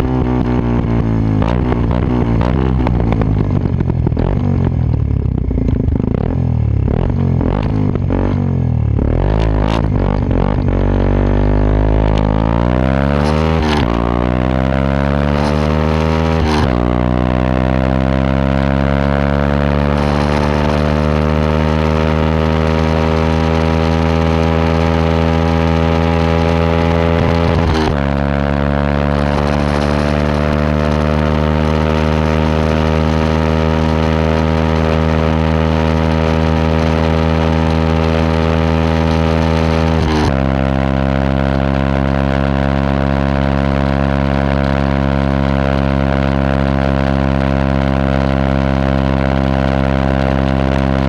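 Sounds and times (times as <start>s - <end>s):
motorcycle engine idling: 2.1s - 9.3s.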